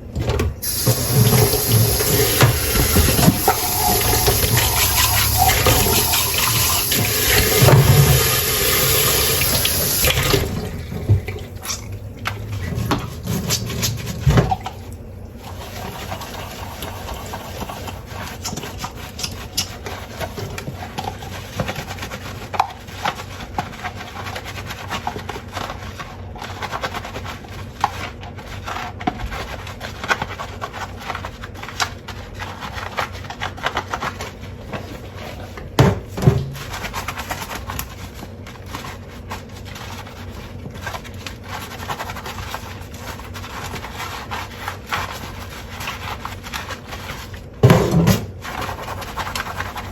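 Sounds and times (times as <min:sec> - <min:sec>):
tap running into a sink: 0:00.4 - 0:14.8.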